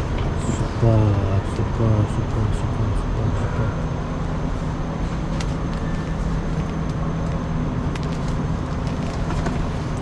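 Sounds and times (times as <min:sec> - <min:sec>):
railway station hall rumble: 0:00.0 - 0:10.0.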